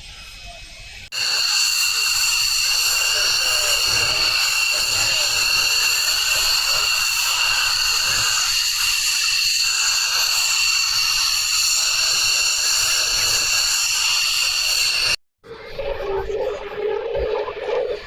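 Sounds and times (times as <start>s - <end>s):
jet engine whining: 1.0s - 15.2s.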